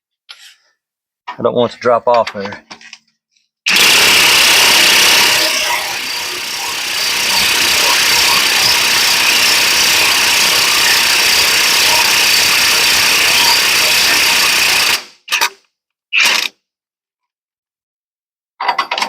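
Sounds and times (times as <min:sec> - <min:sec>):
impact wrench running: 0:03.7 - 0:15.2.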